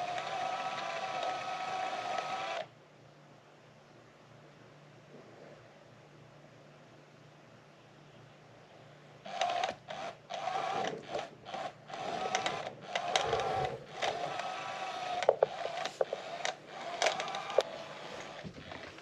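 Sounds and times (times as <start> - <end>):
electric toy motor whirring: 0.0 - 2.7, 9.3 - 19.0
sharp clicks: 9.3 - 17.7.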